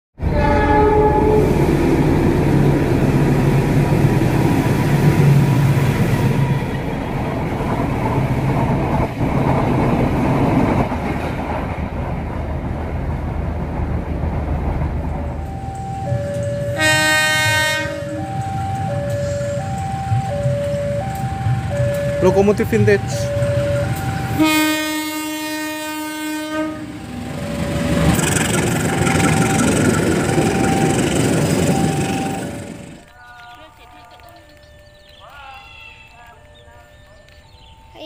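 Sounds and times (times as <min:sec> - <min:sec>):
diesel locomotive horn blast: 0:00.2 - 0:01.8, 0:16.3 - 0:20.2, 0:22.0 - 0:32.8
train wheels clattering on rails: 0:01.5 - 0:16.7, 0:27.4 - 0:33.6
alternating tones: 0:13.0 - 0:33.2.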